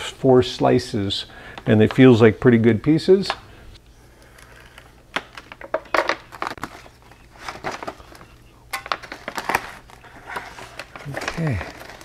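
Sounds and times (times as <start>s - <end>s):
foil bag crinkling: 4.2s - 12.0s
knife slicing foil bag: 8.8s - 12.0s.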